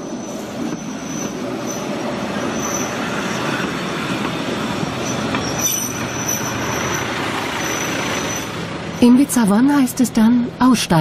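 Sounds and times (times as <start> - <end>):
high-pitched wheel squeal: 0.0 - 3.6, 4.9 - 9.1
railcar wheels rumbling on rails: 0.0 - 10.5.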